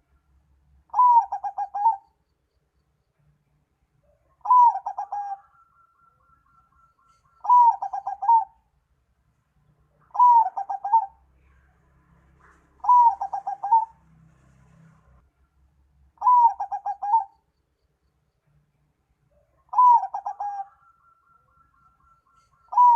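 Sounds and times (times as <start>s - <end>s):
recorded bird call: 0.0s - 9.0s, 9.6s - 22.9s.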